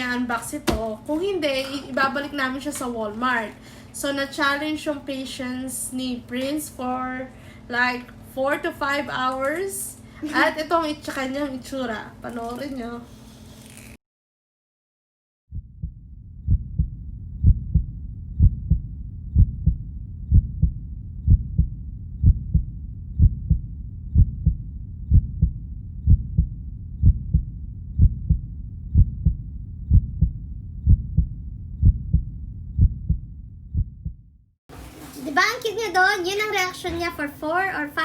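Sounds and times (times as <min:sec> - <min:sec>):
heartbeat thuds: 0:15.5 - 0:34.4.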